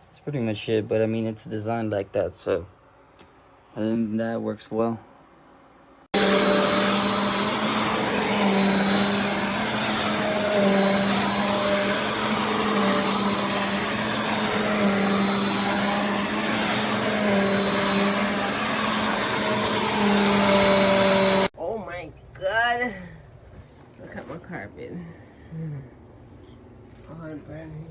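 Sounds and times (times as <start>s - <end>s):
vacuum cleaner running: 6.1s - 21.5s.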